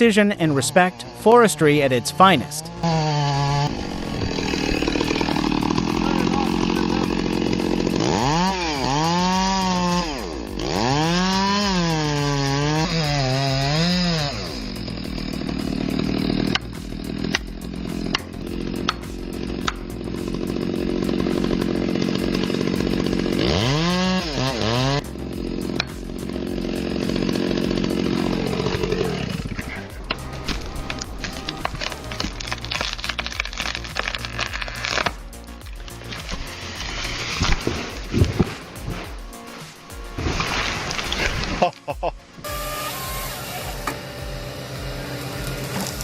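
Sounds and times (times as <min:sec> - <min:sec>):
chainsaw cutting and revving: 0:00.0 - 0:46.0.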